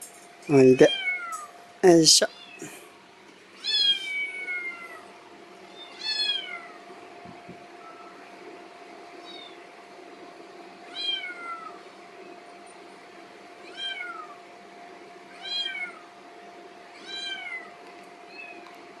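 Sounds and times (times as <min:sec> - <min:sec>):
kitten meowing: 0:00.8 - 0:01.5, 0:03.6 - 0:05.0, 0:05.8 - 0:06.8, 0:10.9 - 0:11.8, 0:13.6 - 0:14.4, 0:15.3 - 0:16.1, 0:17.0 - 0:17.7.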